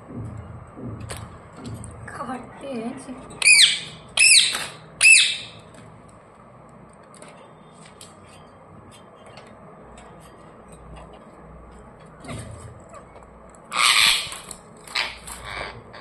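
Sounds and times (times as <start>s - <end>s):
parrot squawks: 3.4s - 5.6s, 13.7s - 16.0s.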